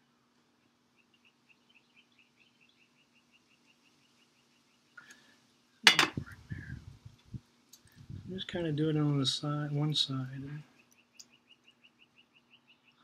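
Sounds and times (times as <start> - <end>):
bird chirping: 0.6 - 5.2, 10.4 - 13.0.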